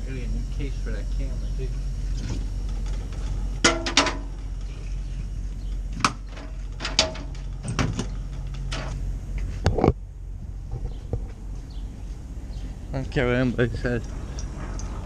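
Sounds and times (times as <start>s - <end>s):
metallic clicks and clanks: 6.0s - 9.0s.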